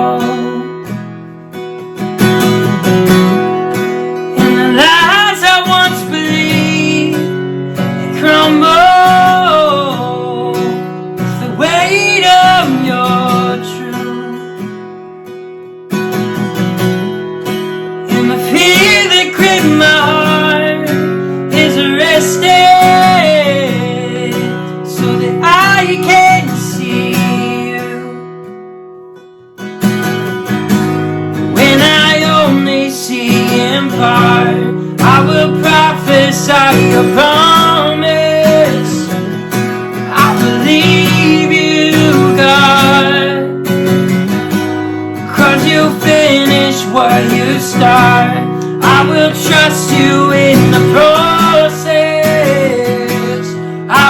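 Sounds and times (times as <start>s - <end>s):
person singing: 0.0s - 0.9s, 4.4s - 14.6s, 18.0s - 28.3s, 31.5s - 43.7s, 45.2s - 54.0s
strummed acoustic guitar: 0.0s - 54.0s.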